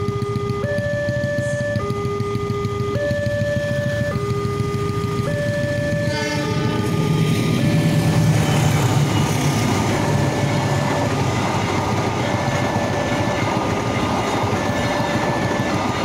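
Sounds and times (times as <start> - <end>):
two-tone crossing warning signal: 0.0 - 16.0
passenger train rumbling: 4.6 - 16.0.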